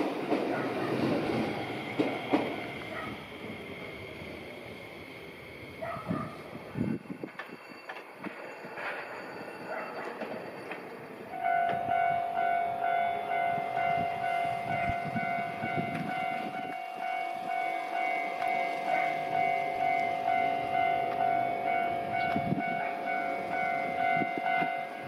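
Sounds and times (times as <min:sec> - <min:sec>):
level-crossing alarm ringing: 0:00.0 - 0:05.9, 0:06.8 - 0:25.0
train rumble and rail clicks: 0:00.0 - 0:25.0.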